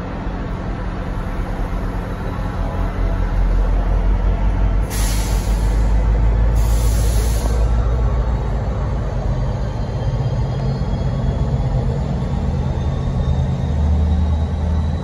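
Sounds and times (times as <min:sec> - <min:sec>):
train locomotive idling: 0:00.0 - 0:15.0
air brakes hissing: 0:04.8 - 0:07.8.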